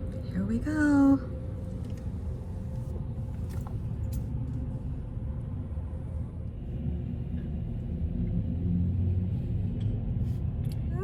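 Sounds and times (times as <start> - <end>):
car rumbling inside cabin: 7.6 - 11.0.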